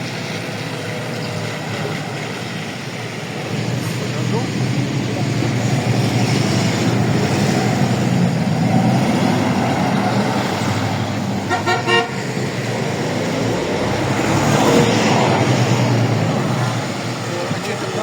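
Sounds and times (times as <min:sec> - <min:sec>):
bus engine running: 0:00.0 - 0:18.0
bus horn toot: 0:10.8 - 0:13.0.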